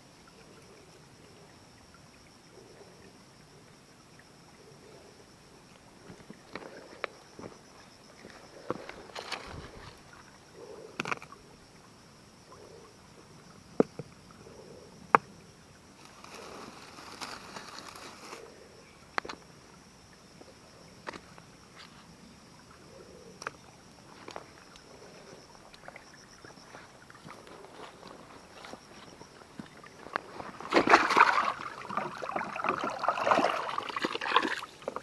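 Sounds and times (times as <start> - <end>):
rustling: 16.0 - 18.5.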